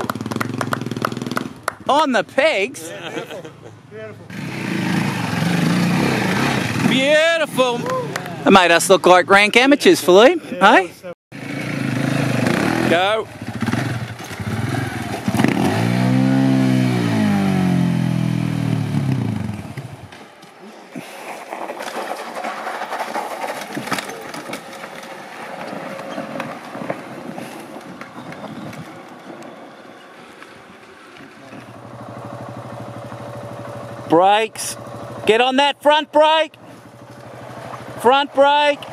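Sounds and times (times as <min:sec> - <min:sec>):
motorcycle engine revving: 0:00.0 - 0:01.9, 0:04.2 - 0:07.8, 0:11.3 - 0:20.1, 0:31.5 - 0:38.9.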